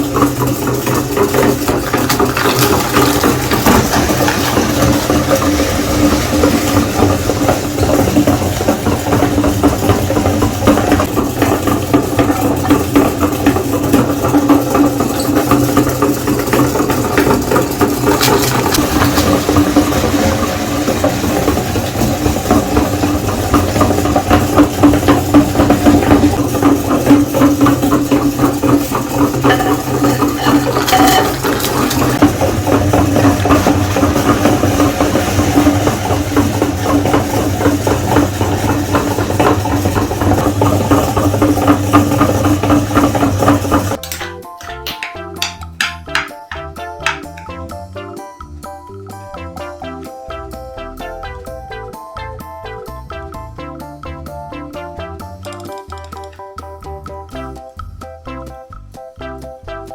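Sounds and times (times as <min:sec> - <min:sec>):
cookies crackling in grinder: 0:00.0 - 0:47.5, 0:55.4 - 0:56.5
meat grinder motor humming: 0:00.0 - 0:47.5.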